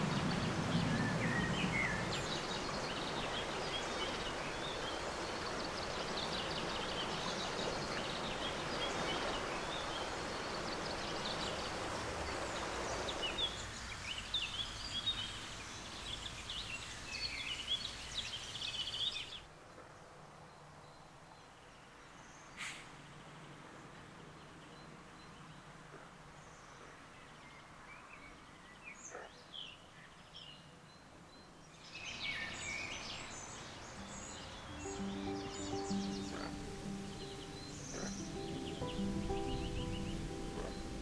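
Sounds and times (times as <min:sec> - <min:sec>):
songbirds chirping and singing: 0:00.0 - 0:11.8, 0:31.9 - 0:41.0
steady rushing hiss: 0:00.0 - 0:18.6, 0:33.1 - 0:41.0.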